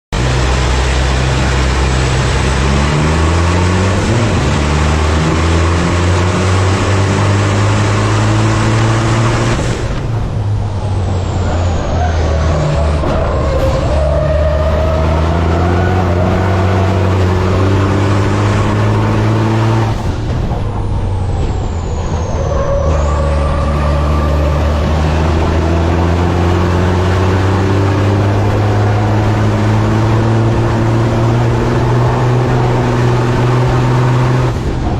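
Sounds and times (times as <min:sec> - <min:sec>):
truck diesel engine accelerating: 0:00.0 - 0:34.9
high falling whistle: 0:10.6 - 0:34.6.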